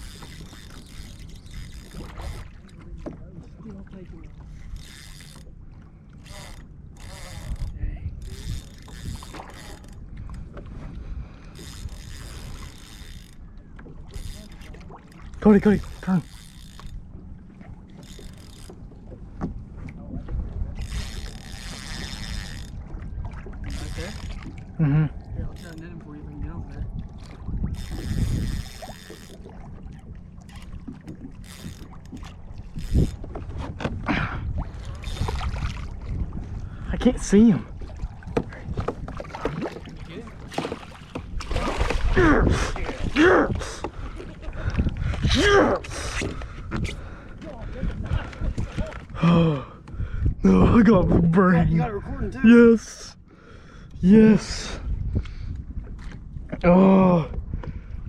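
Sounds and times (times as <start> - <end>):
paddle splashes: 0.0 - 7.6, 8.4 - 25.4, 26.9 - 49.2
low wind-like rumble: 0.0 - 52.5, 53.2 - 58.0
boat gear clicking and knocking: 30.5 - 34.2, 38.2 - 42.0
knocks against kayak hull: 38.3 - 39.7.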